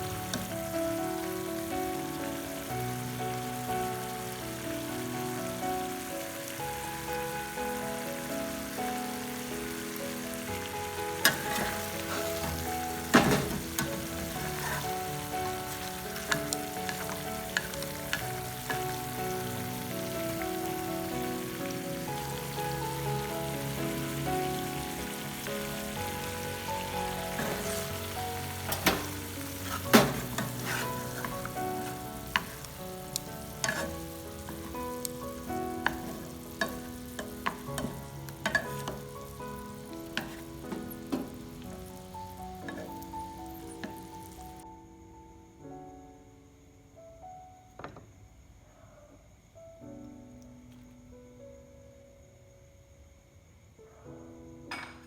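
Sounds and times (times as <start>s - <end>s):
eggs sizzling in a pan: 0.0s - 44.6s
soft background music: 0.0s - 48.5s.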